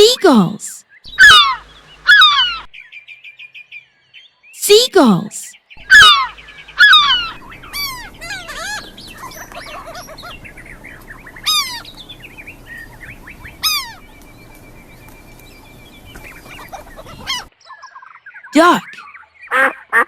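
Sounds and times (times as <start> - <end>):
chatter of soft gull calls: 1.1 - 2.6, 5.8 - 14.2, 16.1 - 17.5.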